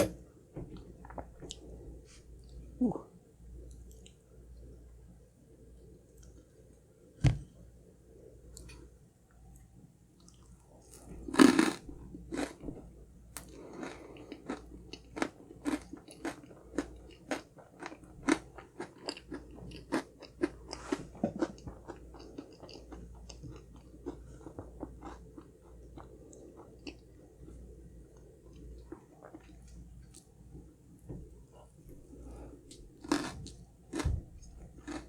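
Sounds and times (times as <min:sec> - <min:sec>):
crunchy chewing of cake: 0:10.2 - 0:35.0.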